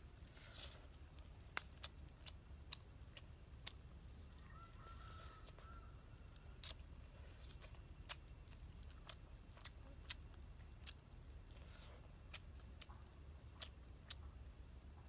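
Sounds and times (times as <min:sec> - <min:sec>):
person chewing: 0:00.0 - 0:14.4
mouth clicks and smacks: 0:01.4 - 0:03.9, 0:06.6 - 0:11.0, 0:12.2 - 0:14.4.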